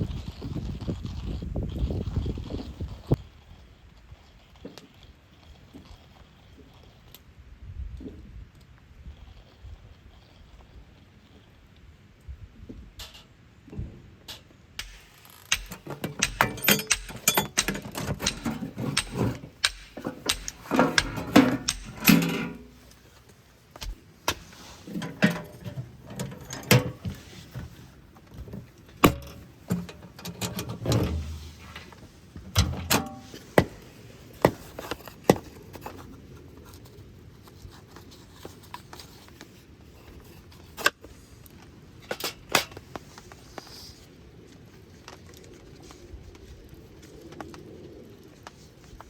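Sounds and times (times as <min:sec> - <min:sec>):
clicks and knocks of handled objects: 0:14.3 - 0:36.1.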